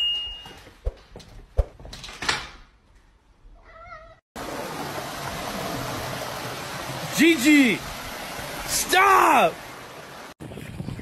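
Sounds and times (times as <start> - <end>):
cat meowing: 3.6 - 4.2.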